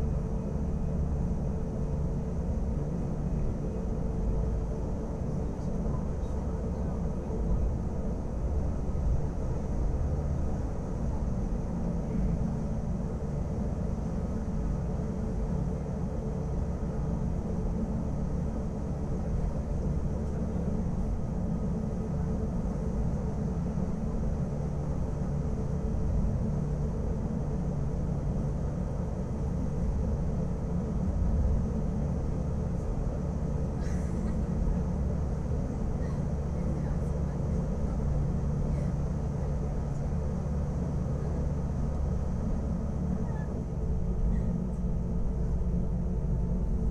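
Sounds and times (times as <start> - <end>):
train low rumble: 0.0 - 46.9.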